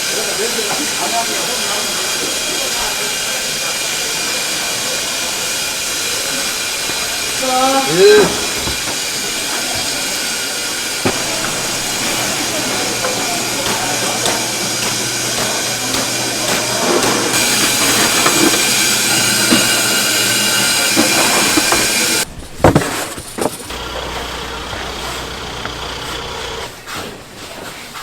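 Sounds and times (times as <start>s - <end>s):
cooking hiss: 0.0s - 22.3s, 23.6s - 26.7s
sharp knocks: 11.0s - 22.2s.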